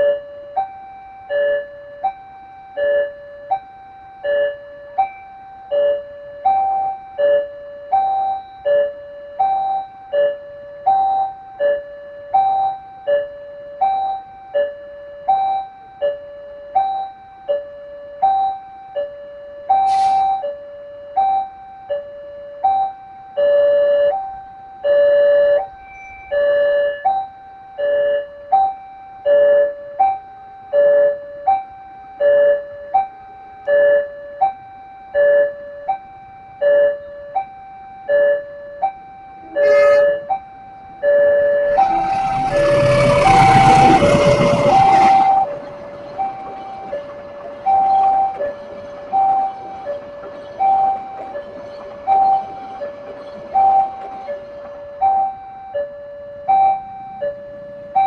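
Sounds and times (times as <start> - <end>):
level-crossing two-tone alarm: 0.0 - 58.0
short sharp noise: 19.9 - 20.4.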